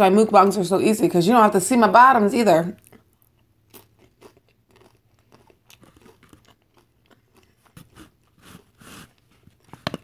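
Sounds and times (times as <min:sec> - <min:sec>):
chewing crunchy tortilla chips: 0:02.8 - 0:10.0.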